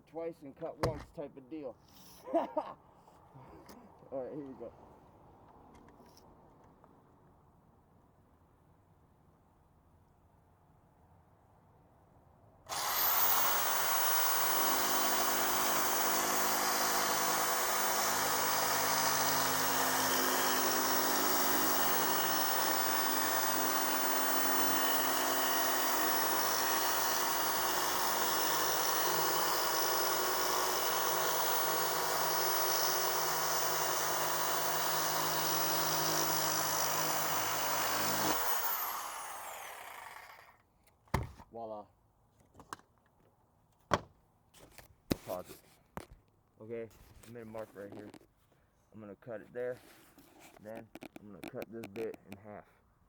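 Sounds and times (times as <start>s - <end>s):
electric power tool cutting: 12.7s - 40.5s.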